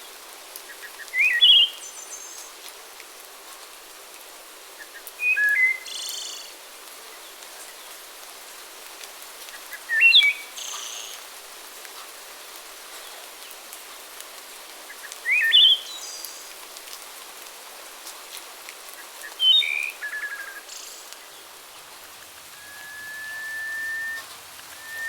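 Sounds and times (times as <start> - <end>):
background hiss: 0.0 - 25.0
songbird calls with trill: 0.8 - 2.4, 4.8 - 6.5, 9.9 - 11.2, 14.9 - 16.3, 19.2 - 21.1, 22.5 - 25.0
high whistle-like tone: 22.6 - 25.0.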